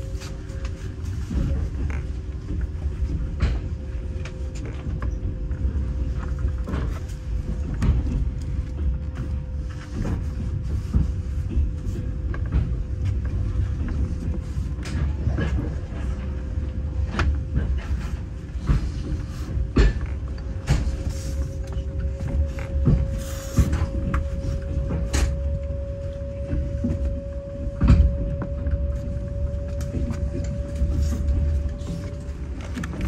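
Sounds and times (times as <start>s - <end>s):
steady hum: 0.0s - 33.0s
train wheels rumbling on track: 0.0s - 33.0s.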